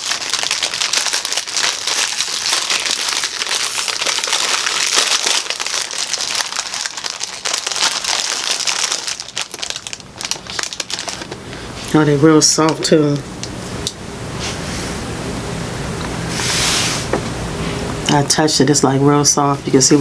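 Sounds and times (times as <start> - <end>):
wrapper crinkling: 0.0 - 13.2.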